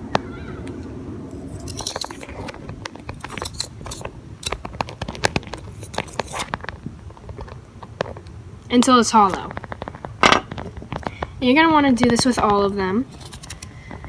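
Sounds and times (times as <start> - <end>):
knife scraping gourd pith: 1.4 - 7.5, 12.1 - 14.0.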